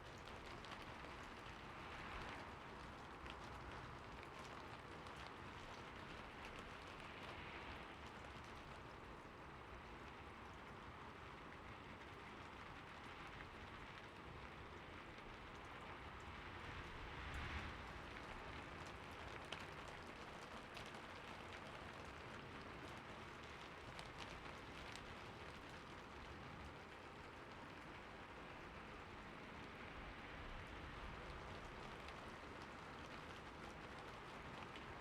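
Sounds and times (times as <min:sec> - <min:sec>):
light rain falling: 0:00.0 - 0:35.0.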